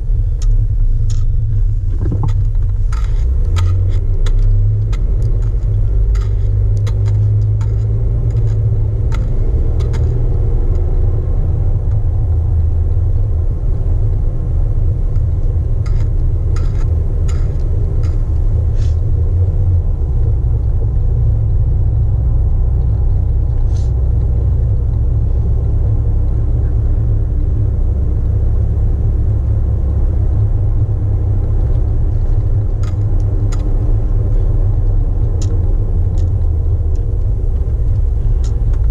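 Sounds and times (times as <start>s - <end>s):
car engine low rumble: 0.0s - 38.9s.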